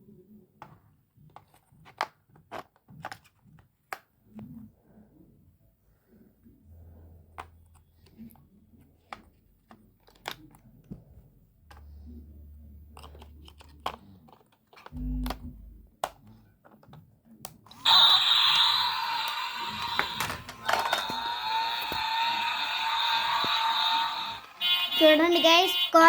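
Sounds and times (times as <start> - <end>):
plastic toy car clicks and rattles: 1.3 - 4.1, 9.0 - 11.0, 12.9 - 15.4, 19.2 - 22.1.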